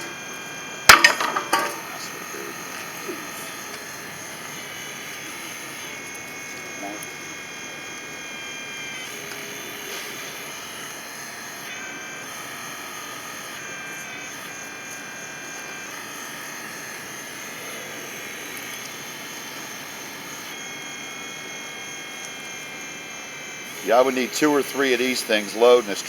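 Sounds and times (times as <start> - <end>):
toy excavator mechanical whine: 0.0 - 26.0.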